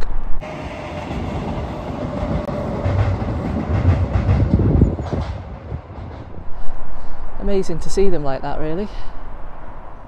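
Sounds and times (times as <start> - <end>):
diesel train engine rumble: 0.4 - 10.0
train wheels thumping: 0.8 - 6.5.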